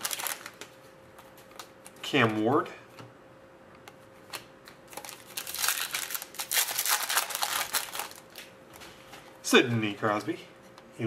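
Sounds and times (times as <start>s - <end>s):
foil wrapper crinkling: 0.0s - 0.8s, 4.9s - 8.5s.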